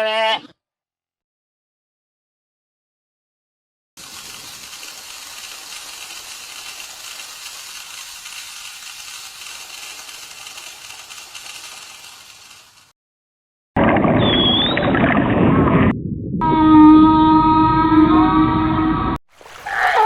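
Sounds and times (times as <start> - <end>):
steady high hissing: 4.0 - 12.9.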